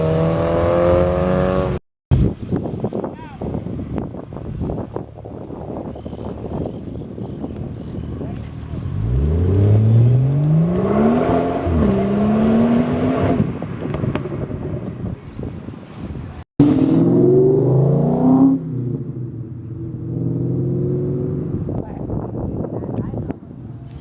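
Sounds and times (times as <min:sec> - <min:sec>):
engine revving: 0:00.0 - 0:01.8, 0:08.6 - 0:13.6, 0:16.6 - 0:21.7
car engine accelerating: 0:08.4 - 0:14.9, 0:16.6 - 0:21.8.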